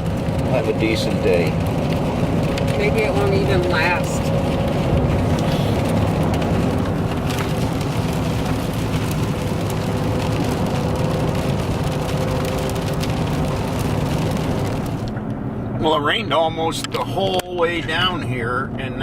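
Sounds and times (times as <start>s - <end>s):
raindrops ticking on glass: 0.0s - 15.1s
road and engine drone: 0.0s - 19.0s.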